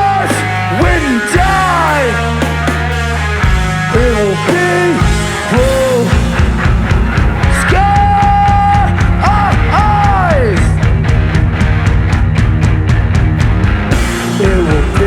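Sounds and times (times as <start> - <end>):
person singing: 0.0 - 2.5, 3.9 - 6.5, 7.4 - 10.8, 14.2 - 15.0
bass guitar: 0.0 - 15.0
distorted electric guitars: 0.0 - 15.0
drums: 0.0 - 15.0.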